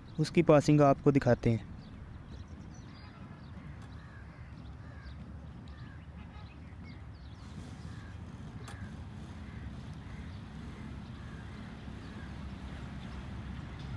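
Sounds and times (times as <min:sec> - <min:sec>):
birds calling: 0:00.0 - 0:13.9
distant locomotive rumble: 0:06.8 - 0:13.9.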